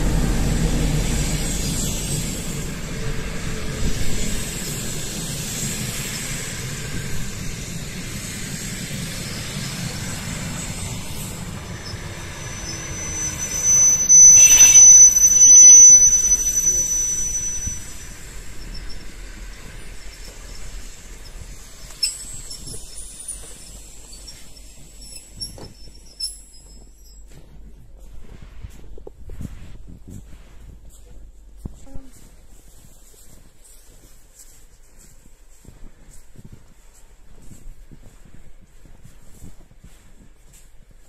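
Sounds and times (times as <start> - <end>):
high brake squeal: 0.0 - 27.3
train rumbling past: 0.0 - 41.0.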